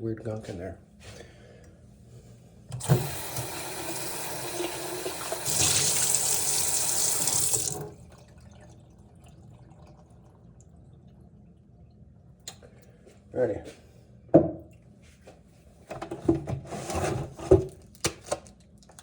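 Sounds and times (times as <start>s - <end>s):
tap water running into sink: 2.7s - 8.1s.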